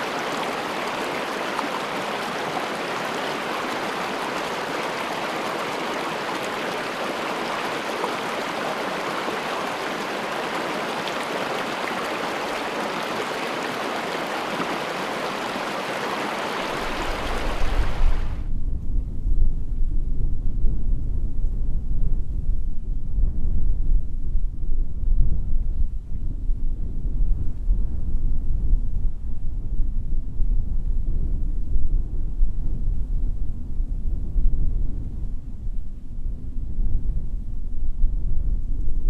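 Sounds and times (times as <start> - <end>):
stream water rushing: 0.0 - 18.4.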